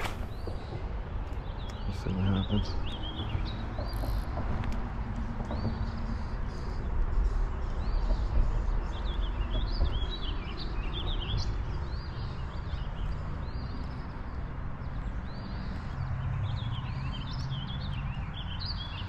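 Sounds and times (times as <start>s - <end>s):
songbirds chirping and singing: 0.0s - 19.0s.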